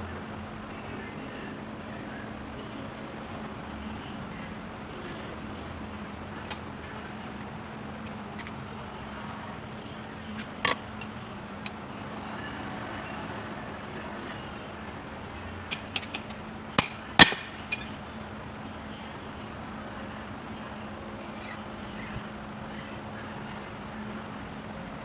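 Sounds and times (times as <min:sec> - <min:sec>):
steady low hum: 0:00.0 - 0:25.0
metal tools clinking: 0:15.7 - 0:18.0.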